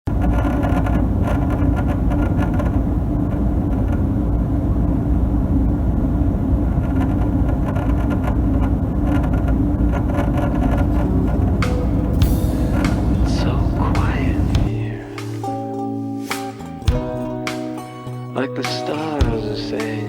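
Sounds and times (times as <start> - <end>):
furnace motor and fan humming: 8.7 - 15.4.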